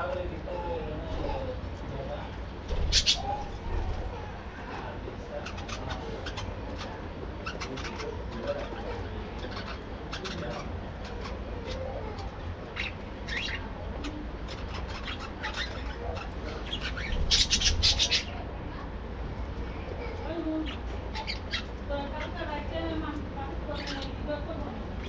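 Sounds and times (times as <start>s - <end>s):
budgerigars chattering: 2.8s - 4.1s, 5.3s - 18.4s, 20.7s - 21.8s.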